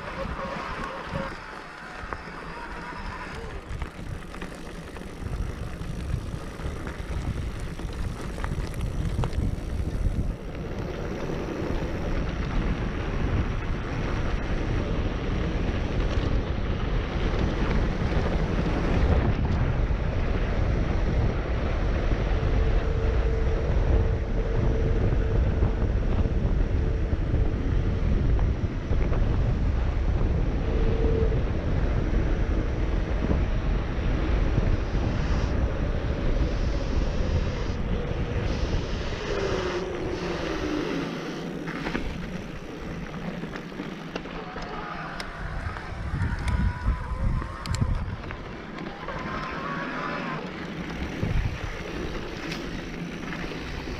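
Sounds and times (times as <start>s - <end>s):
faint thin whine: 0.0s - 12.3s, 34.4s - 53.9s
bike tyre rumble on dirt: 0.0s - 53.9s
wind buffeting the microphone: 0.0s - 53.9s.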